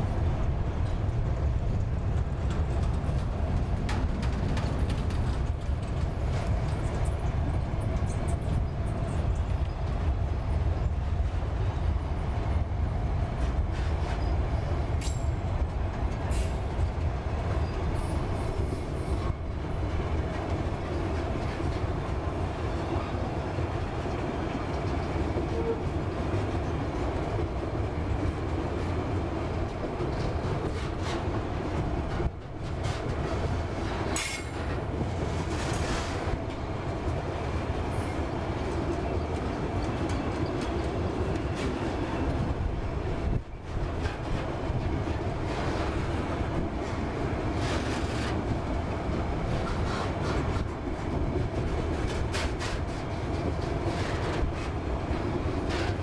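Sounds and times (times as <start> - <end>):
train wheels rumbling on rails: 0.0 - 56.0
wheels and couplings clattering: 1.7 - 10.1.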